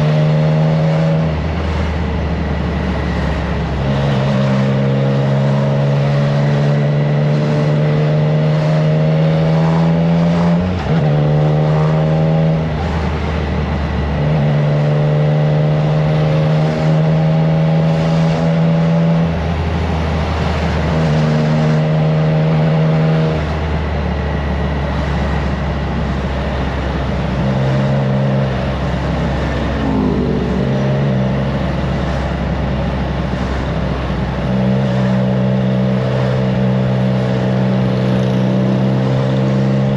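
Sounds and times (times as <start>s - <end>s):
motorcycle engine under way: 0.0s - 39.9s
wind rush: 23.4s - 34.3s.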